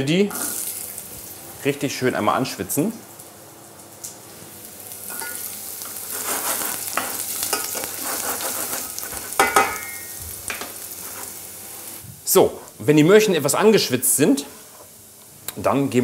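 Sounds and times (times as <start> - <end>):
carrots sizzling in hot oil: 0.3 - 1.7, 4.2 - 15.2.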